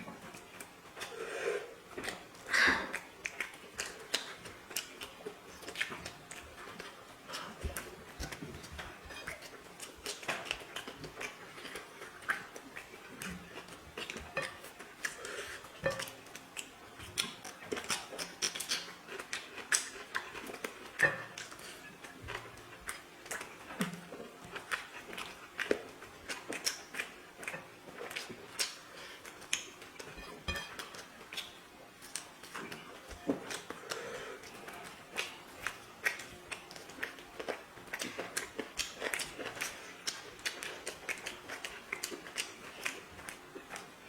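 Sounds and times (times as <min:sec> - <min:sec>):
person chewing food: 0:00.0 - 0:44.0
fingers clinking against plate: 0:11.6 - 0:16.5, 0:29.4 - 0:31.5.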